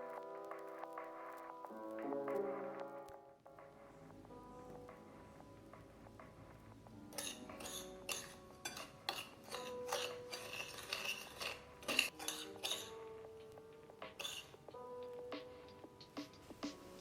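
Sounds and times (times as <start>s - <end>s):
quiet background music: 0.0s - 17.0s
metal utensil scraping cookware: 7.1s - 13.1s, 14.1s - 14.6s.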